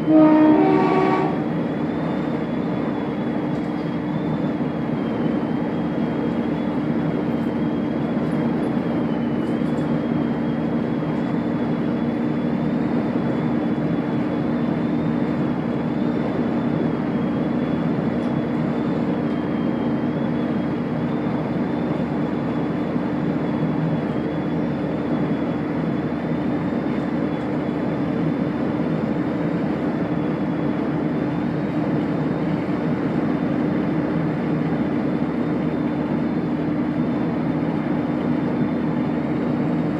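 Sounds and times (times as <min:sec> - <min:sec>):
diesel train humming: 0:00.0 - 0:39.9.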